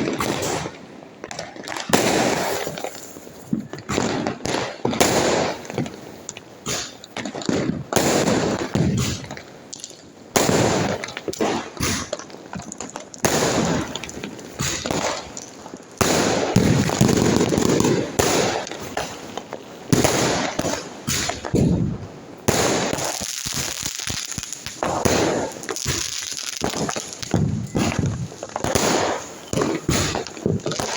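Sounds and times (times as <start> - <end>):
fireworks bangs with crackling: 0.0 - 30.9.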